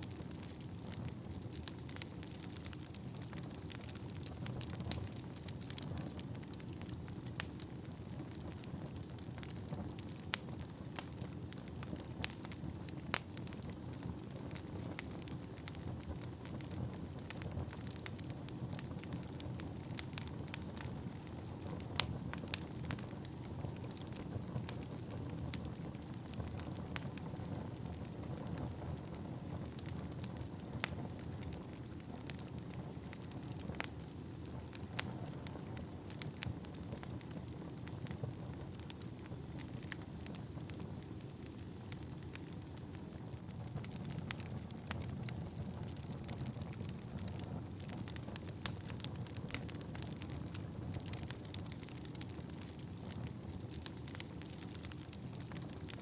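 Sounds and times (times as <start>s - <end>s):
wood fire crackling: 0.0s - 56.0s
faint high whistle: 37.6s - 43.5s.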